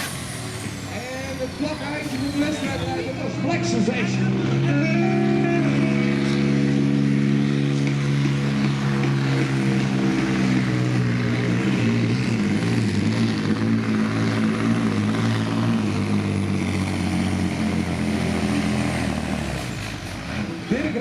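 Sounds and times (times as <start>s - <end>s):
truck engine running hard: 0.0s - 21.0s.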